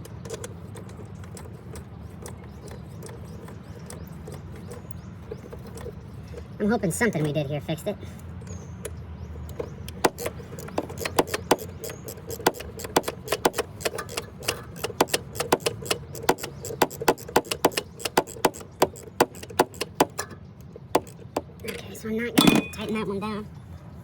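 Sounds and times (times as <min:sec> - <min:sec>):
hand tools clinking on metal: 0:22.4 - 0:23.0.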